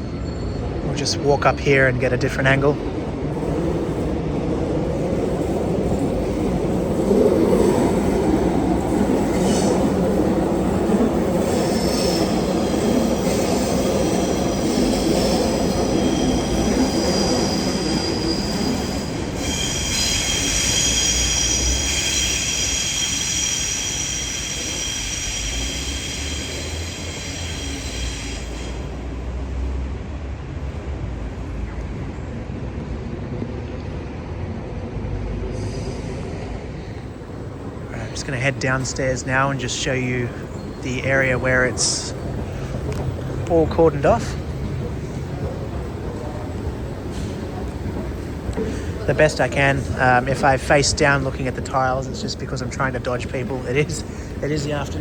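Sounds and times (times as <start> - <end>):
steel wheels squealing on track: 0.0 - 2.8, 5.4 - 29.0, 38.0 - 55.0
low rumble of rail vehicle: 0.0 - 55.0.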